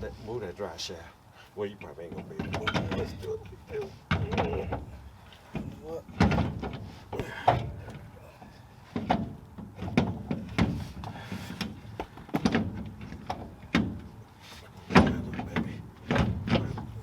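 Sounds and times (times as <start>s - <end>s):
metallic clunks and knocks: 2.0s - 8.1s, 8.9s - 14.2s, 14.8s - 17.0s.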